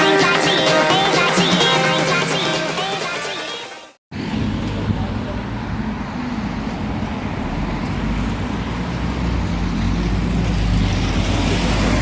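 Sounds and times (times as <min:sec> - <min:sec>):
road noise: 0:04.1 - 0:12.0.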